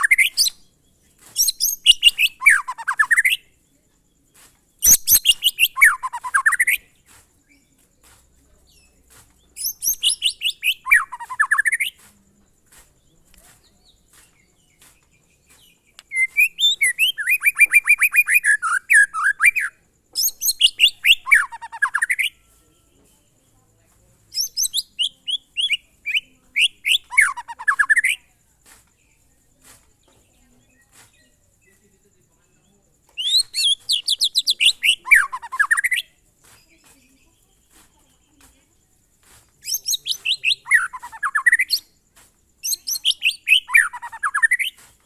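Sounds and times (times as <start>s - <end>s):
bird singing rapid notes: 0.0s - 3.6s, 4.8s - 7.8s, 8.5s - 12.1s, 13.0s - 22.7s, 24.3s - 28.4s, 30.0s - 37.4s, 39.6s - 42.0s, 42.6s - 44.8s.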